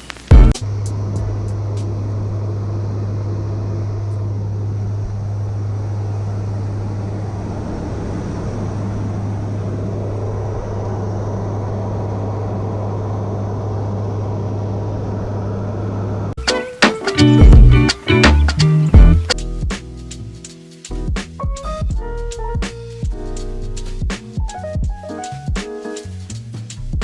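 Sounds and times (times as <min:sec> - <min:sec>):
aircraft engines droning: 0:00.0 - 0:21.1.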